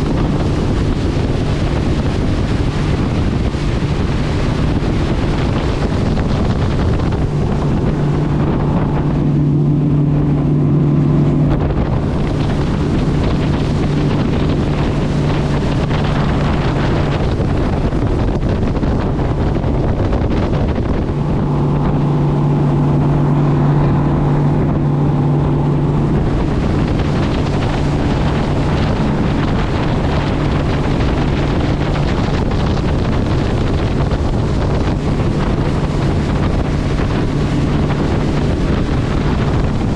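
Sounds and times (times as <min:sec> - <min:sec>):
motorboat engine humming: 0:00.0 - 0:39.9
wind buffeting microphone: 0:00.0 - 0:39.9.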